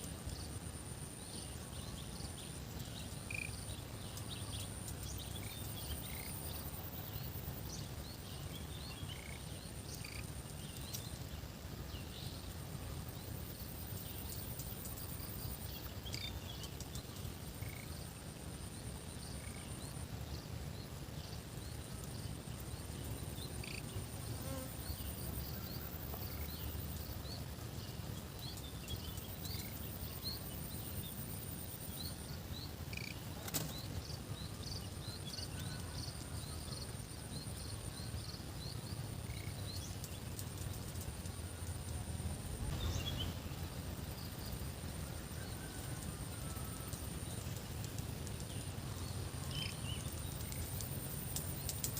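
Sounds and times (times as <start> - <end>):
insects trilling: 0.0 - 51.9
low steady rumble: 37.3 - 51.4.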